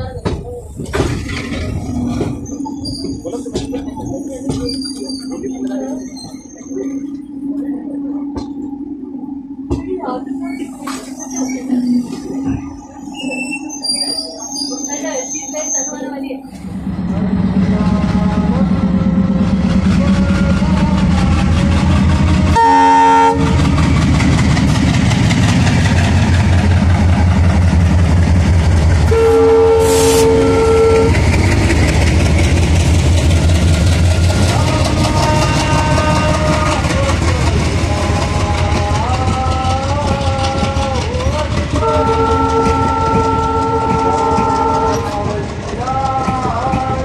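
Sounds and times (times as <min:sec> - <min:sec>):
coaches clattering over rail joints: 0:00.0 - 0:07.3, 0:31.1 - 0:47.0
diesel locomotive engine running: 0:00.0 - 0:47.0
wavering wheel squeal: 0:01.2 - 0:08.6, 0:10.3 - 0:16.6
train air horn blasts: 0:22.5 - 0:23.7, 0:29.0 - 0:31.3, 0:41.8 - 0:45.3.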